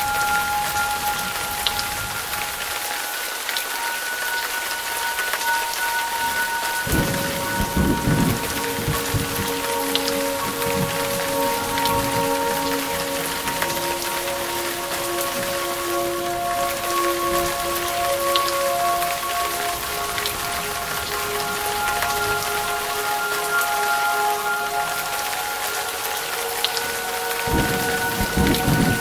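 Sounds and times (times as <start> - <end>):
heavy rain splashing: 0.0 - 29.0
thunder rumble: 6.8 - 9.5, 27.5 - 29.0.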